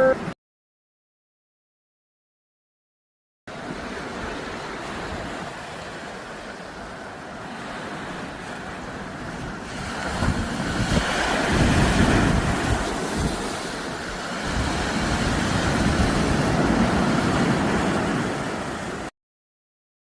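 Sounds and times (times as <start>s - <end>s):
waves washing onto shore: 3.5s - 19.1s
wind buffeting microphone: 8.4s - 19.0s.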